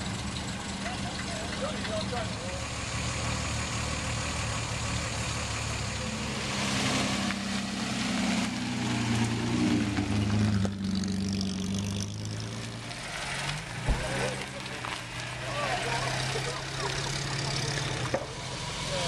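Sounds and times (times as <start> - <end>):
sports car engine running: 7.6 - 19.0.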